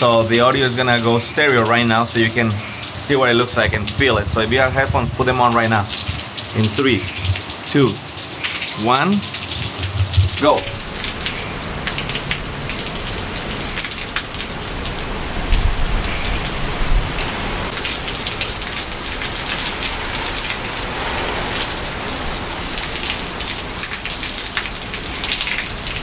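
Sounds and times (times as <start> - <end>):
heavy rain pouring: 0.0 - 26.0
strong wind rushing: 1.7 - 7.5, 15.0 - 23.8.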